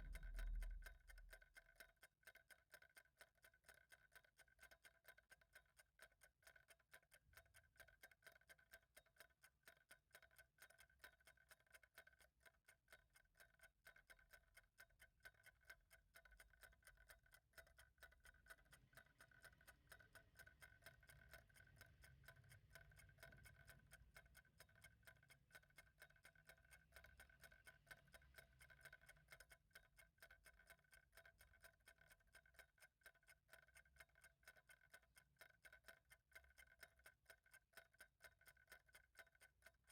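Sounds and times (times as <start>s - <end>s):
faint low rumble: 0.0s - 1.1s
clock ticking: 0.0s - 39.9s.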